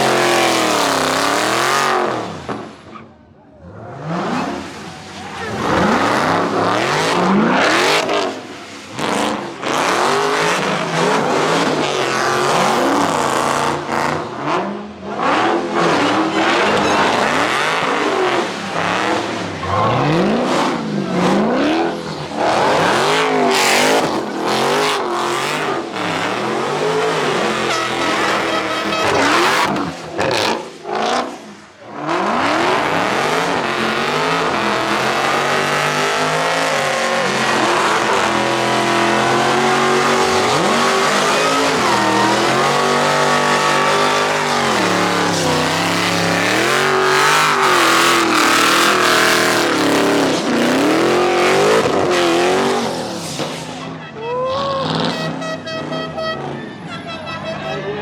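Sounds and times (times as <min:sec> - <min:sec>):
car engine revving hard: 0:00.0 - 0:02.8, 0:03.6 - 0:53.8
tire squeal: 0:00.0 - 0:58.0.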